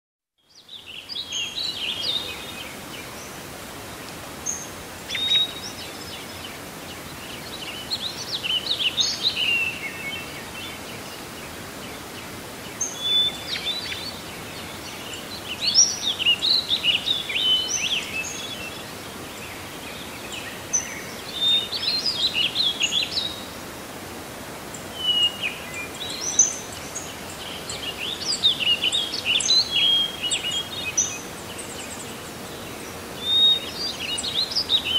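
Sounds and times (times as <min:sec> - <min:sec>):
bird chirping: 0:24.9 - 0:34.9.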